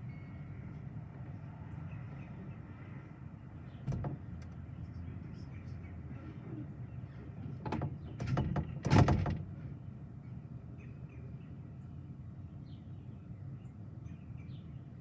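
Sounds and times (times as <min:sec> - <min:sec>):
sharp knocks and clatter: 0:03.8 - 0:04.6, 0:07.6 - 0:09.5.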